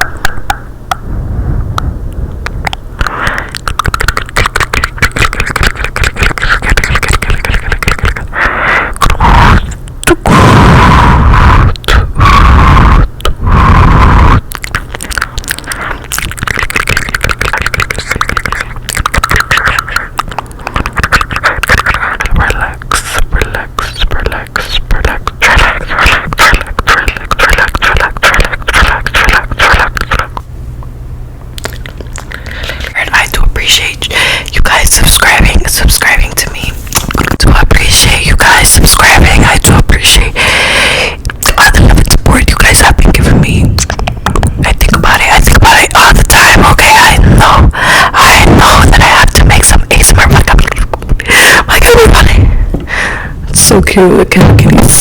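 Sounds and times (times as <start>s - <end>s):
wet mouth clicks and pops: 0.0s - 1.0s, 2.5s - 8.3s, 14.4s - 30.5s, 31.5s - 33.7s, 36.9s - 40.2s, 41.2s - 47.7s, 48.3s - 52.3s
low steady hum: 0.0s - 55.0s.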